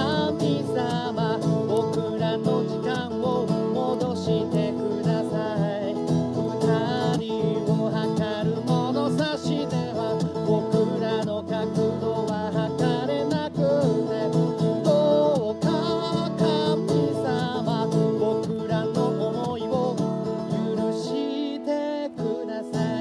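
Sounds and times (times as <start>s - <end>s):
acoustic guitar playing: 0.0s - 23.0s
person singing: 0.0s - 23.0s.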